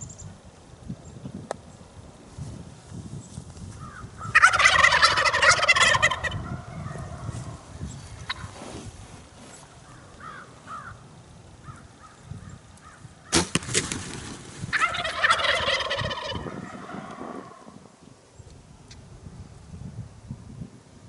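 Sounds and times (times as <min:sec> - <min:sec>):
turkey gobbling: 0:04.2 - 0:07.4, 0:08.3 - 0:08.5, 0:14.7 - 0:17.8.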